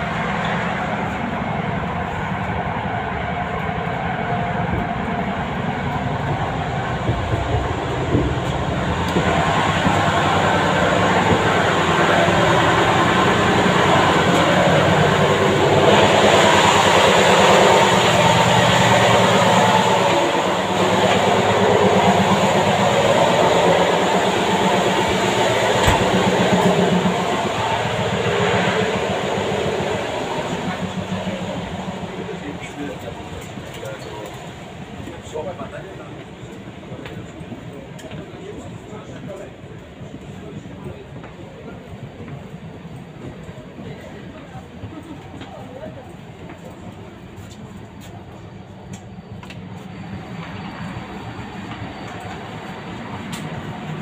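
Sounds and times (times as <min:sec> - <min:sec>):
train wheels rumbling on rails: 0:00.0 - 0:54.0
sharp rail clicks: 0:51.6 - 0:54.0.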